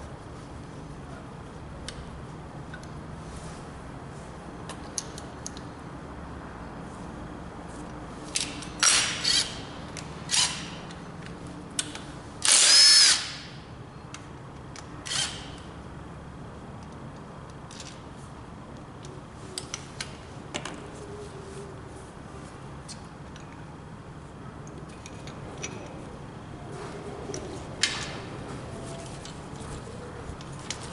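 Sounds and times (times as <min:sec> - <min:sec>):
power tool bursts: 0:12.4 - 0:13.4.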